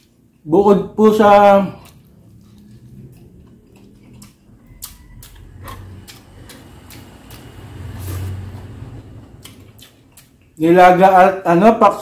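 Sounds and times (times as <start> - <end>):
wet chewing clicks and smacks: 1.6 - 10.7.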